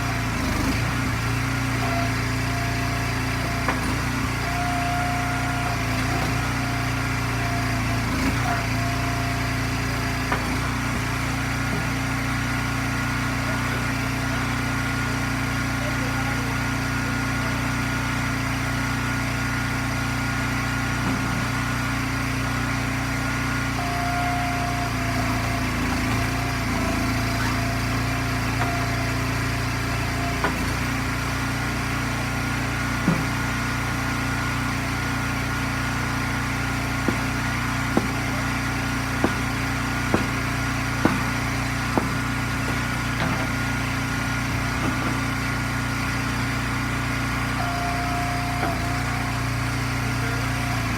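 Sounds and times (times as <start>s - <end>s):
log splitter engine running: 0.0s - 50.9s
sharp knocks: 39.2s - 43.7s.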